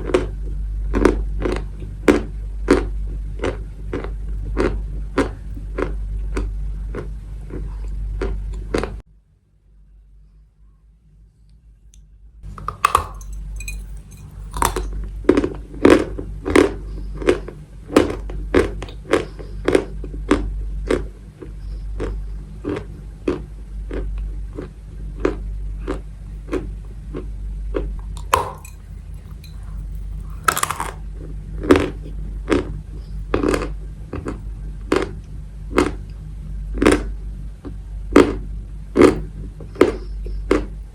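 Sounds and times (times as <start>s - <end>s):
low hum: 0.0s - 40.9s
chalk being chewed: 12.6s - 31.0s, 31.6s - 36.1s.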